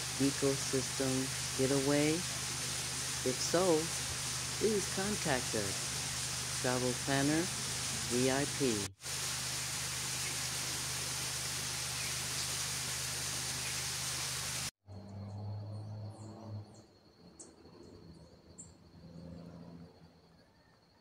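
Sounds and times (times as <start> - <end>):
insect buzz: 0.0 - 8.4, 9.0 - 14.7
birds chirping: 10.0 - 14.6.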